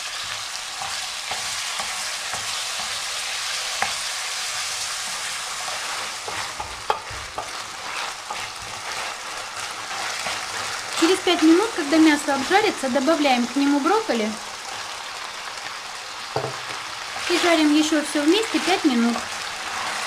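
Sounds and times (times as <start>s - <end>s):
chicken sizzling in oil: 0.0s - 20.0s
wooden spoon knocking on pan: 6.3s - 7.6s, 16.3s - 16.7s.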